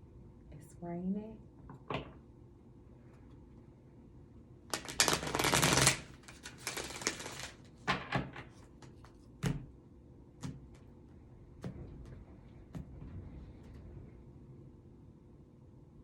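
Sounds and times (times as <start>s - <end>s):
cards tapping: 4.7s - 7.6s
cards being shuffled: 4.7s - 7.8s.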